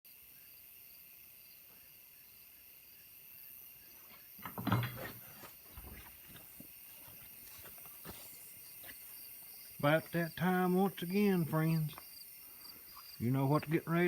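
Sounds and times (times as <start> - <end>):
insects chirping: 0.1 - 14.0
knocks and rustling: 4.1 - 9.0.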